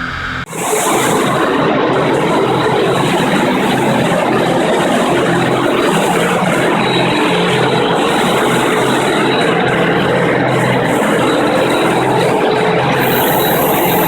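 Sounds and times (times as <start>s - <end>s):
concrete floor grinder grinding: 0.4s - 14.0s.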